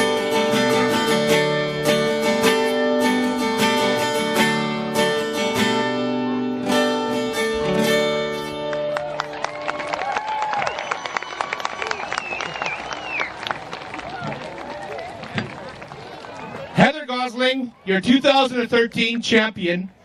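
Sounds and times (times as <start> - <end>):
acoustic guitar strumming: 0.0 - 9.4.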